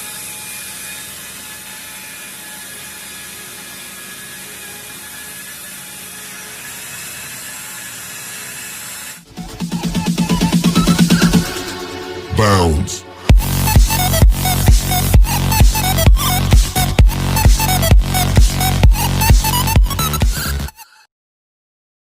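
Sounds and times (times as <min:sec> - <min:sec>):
electric polisher whirring: 0:00.0 - 0:09.3
electronic music with a beat: 0:09.4 - 0:20.8.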